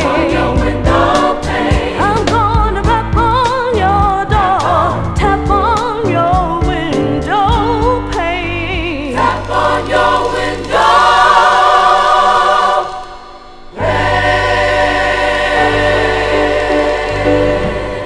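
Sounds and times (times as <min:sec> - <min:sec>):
choir singing with band: 0:00.0 - 0:03.6, 0:09.1 - 0:18.0.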